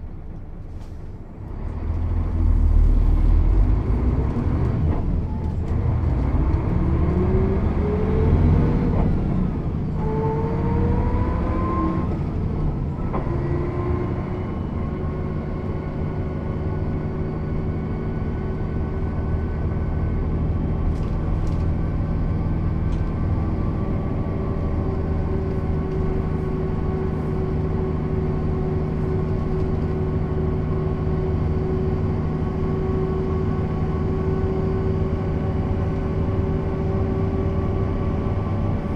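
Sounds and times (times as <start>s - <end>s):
bus diesel engine shifting gears: 0.0s - 38.9s.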